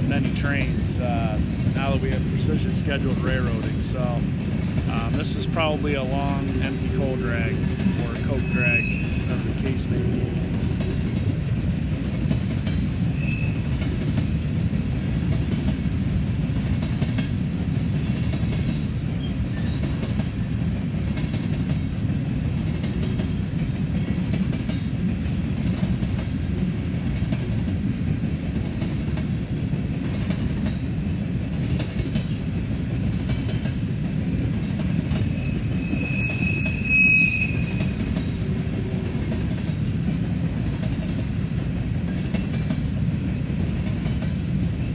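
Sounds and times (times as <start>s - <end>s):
freight train rolling past: 0.0s - 44.9s
high wheel squeal: 8.2s - 9.6s, 13.1s - 14.0s, 17.5s - 19.0s, 35.3s - 38.0s.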